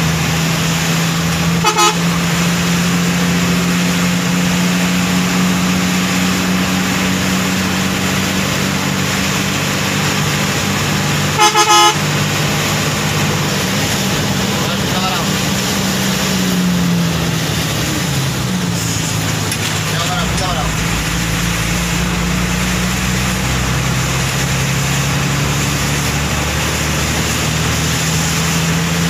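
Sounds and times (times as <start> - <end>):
engine drone: 0.0 - 29.0
vehicle horn toots: 1.6 - 2.3, 11.3 - 12.2.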